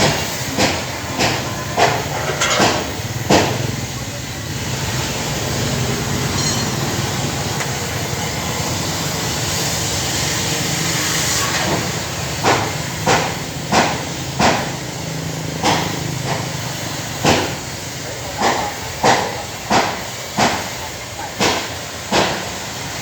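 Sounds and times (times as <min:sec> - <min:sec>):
sharp hammer strikes: 0:12.4 - 0:14.8, 0:15.6 - 0:16.4, 0:17.2 - 0:17.6, 0:18.4 - 0:20.7, 0:21.4 - 0:22.5.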